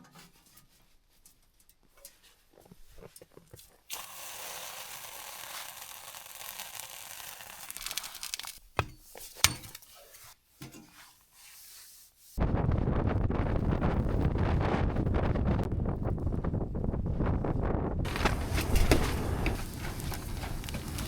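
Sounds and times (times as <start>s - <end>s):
steady hissing crackle: 3.9s - 8.6s, 18.1s - 21.0s
wind rushing on microphone: 12.4s - 21.0s.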